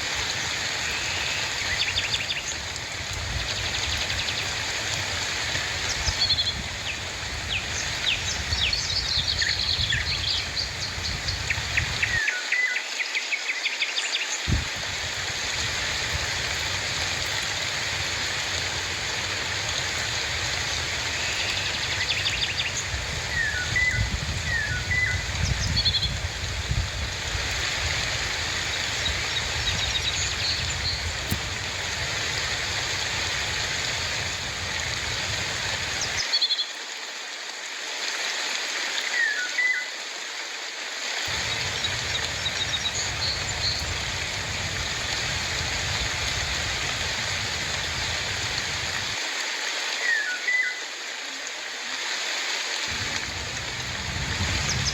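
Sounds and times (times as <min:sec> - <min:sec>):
small birds chirping: 0:00.0 - 0:12.3, 0:14.4 - 0:26.4, 0:28.1 - 0:36.2, 0:41.3 - 0:49.2, 0:52.9 - 0:54.9
rain hissing: 0:00.0 - 0:12.7, 0:14.3 - 0:39.3, 0:40.4 - 0:54.9.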